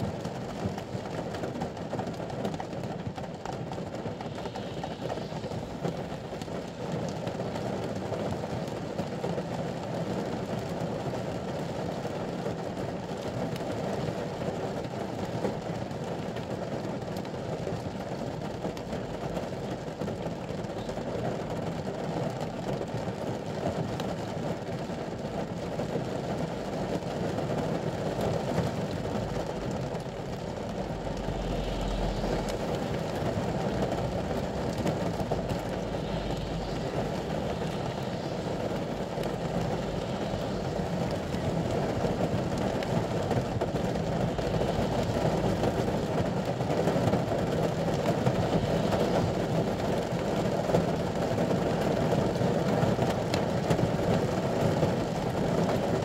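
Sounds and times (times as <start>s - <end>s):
rain drumming on a vehicle roof: 0.0s - 56.0s
deep low rumble: 2.8s - 7.5s, 28.8s - 50.4s.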